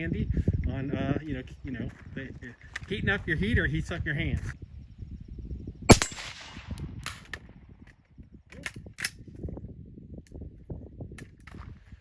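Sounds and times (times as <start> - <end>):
wind rumble: 0.0 - 12.0
suppressed rifle shot: 5.9 - 7.2
metallic clicks of rifle handling: 8.5 - 9.2.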